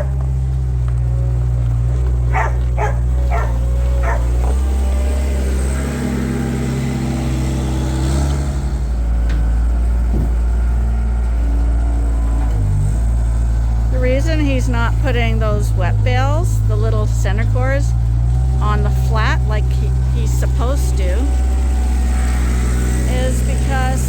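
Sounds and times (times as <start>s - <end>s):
dog barking: 0.0s - 0.2s, 2.2s - 4.5s
tractor engine running: 0.0s - 24.0s.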